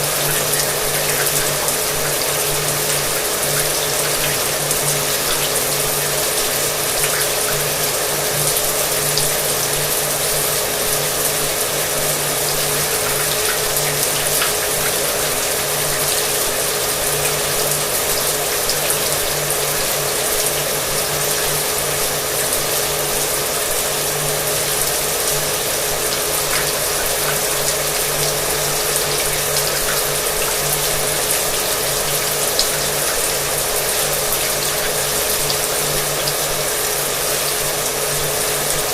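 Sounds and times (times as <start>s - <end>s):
shower water running: 0.0s - 38.9s.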